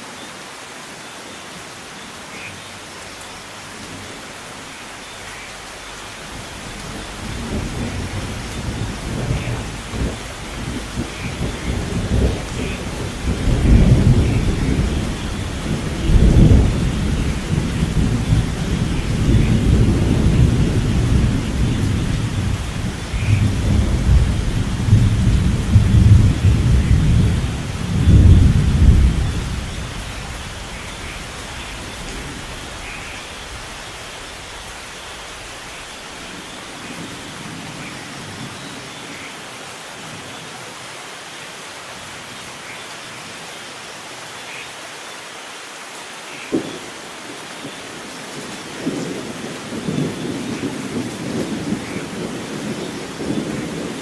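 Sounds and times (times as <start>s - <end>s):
steady rainfall: 0.0s - 54.0s
rolling thunder: 6.4s - 33.7s.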